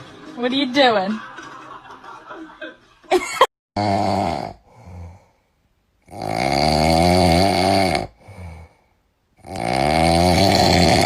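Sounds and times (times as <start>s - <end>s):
dog snoring: 3.8s - 5.4s, 6.0s - 11.0s.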